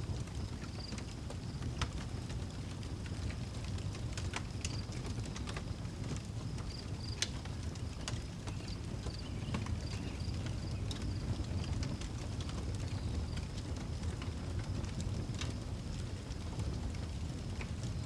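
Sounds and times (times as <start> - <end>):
low rumble of flame: 0.0 - 18.0
wood fire crackling and popping: 0.1 - 18.0.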